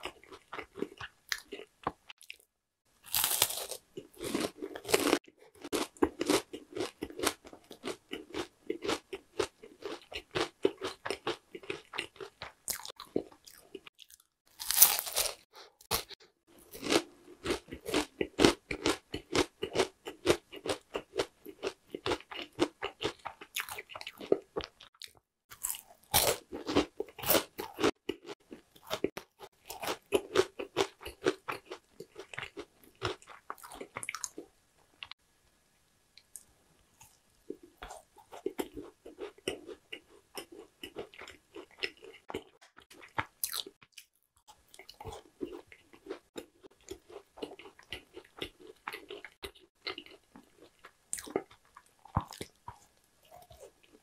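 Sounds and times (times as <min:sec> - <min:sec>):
crunchy bites into snack bar: 0:03.1 - 0:11.0, 0:14.0 - 0:16.2
crackly chewing: 0:03.1 - 0:35.2, 0:36.2 - 0:54.0.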